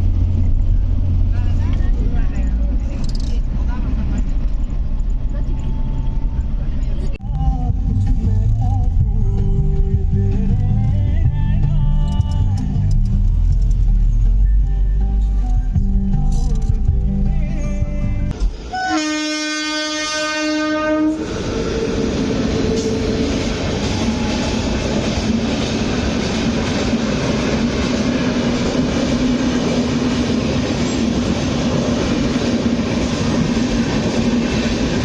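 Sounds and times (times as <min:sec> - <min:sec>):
train rumbling and clattering: 0:00.0 - 0:35.0
train horn blast: 0:18.7 - 0:21.3.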